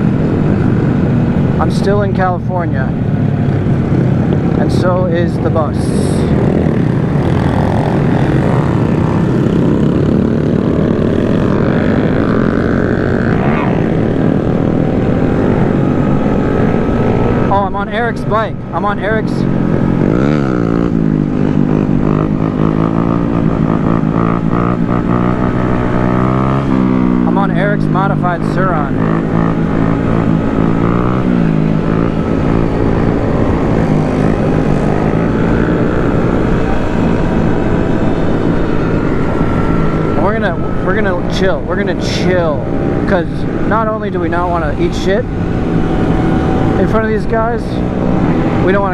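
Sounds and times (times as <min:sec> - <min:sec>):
motorcycle engines droning: 0:00.0 - 0:48.9
wind rumble on microphone: 0:00.0 - 0:48.9
wind rushing: 0:02.8 - 0:23.9.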